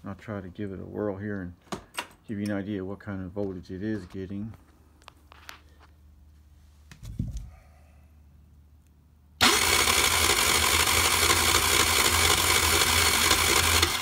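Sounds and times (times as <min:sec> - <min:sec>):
starter motor cranking engine: 0:09.4 - 0:14.0.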